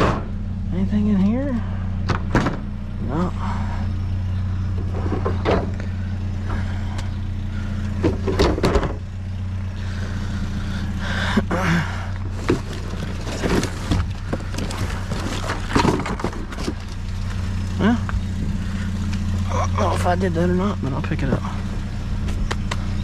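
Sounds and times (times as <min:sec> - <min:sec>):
junk knocking and rattling: 0:00.0 - 0:00.4, 0:02.0 - 0:02.9, 0:04.6 - 0:09.2, 0:12.1 - 0:18.8
vehicle engine idling: 0:00.0 - 0:23.0.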